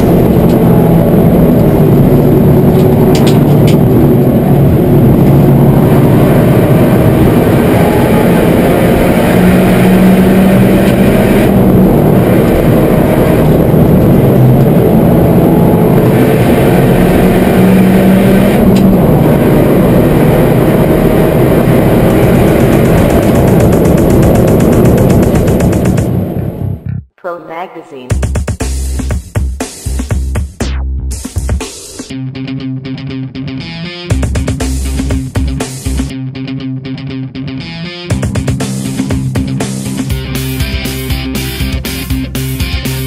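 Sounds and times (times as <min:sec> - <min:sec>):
road and wind noise: 0:00.0 - 0:27.0, 0:38.0 - 0:43.0
car engine accelerating: 0:00.0 - 0:27.1, 0:32.0 - 0:43.0.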